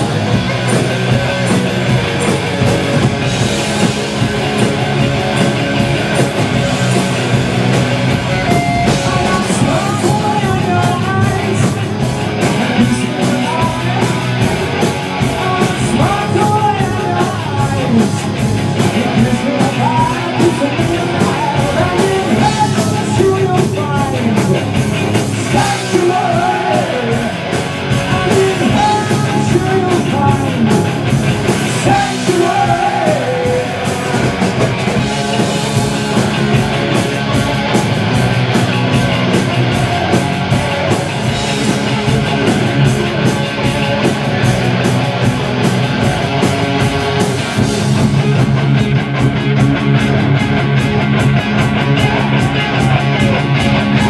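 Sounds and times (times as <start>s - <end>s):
rock band playing loudly: 0.0s - 54.0s
person singing: 8.7s - 14.5s, 15.2s - 18.2s, 18.9s - 24.6s, 25.4s - 27.4s, 28.0s - 31.0s, 31.8s - 34.4s.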